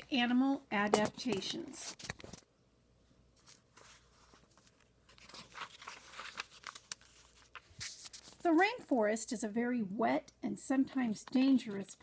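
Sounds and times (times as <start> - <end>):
rustling and crinkling handling noise: 0.0 - 2.5, 3.3 - 9.1.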